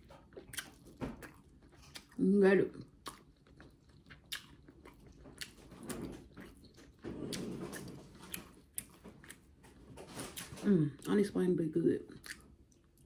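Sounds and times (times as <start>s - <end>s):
person chewing: 0.0s - 11.2s, 12.1s - 13.0s
small mouth clicks and smacks: 2.9s - 5.7s, 12.1s - 13.0s.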